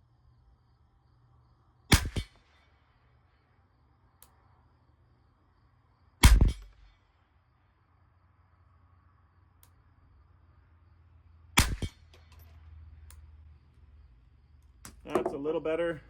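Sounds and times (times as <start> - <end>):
rifle shots: 1.9 - 2.4, 11.6 - 12.0.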